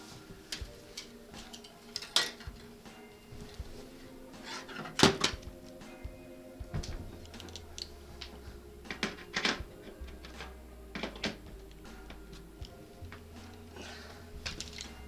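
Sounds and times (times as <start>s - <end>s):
low steady hum: 0.0s - 15.0s
sharp clicks and light knocks: 6.6s - 13.8s.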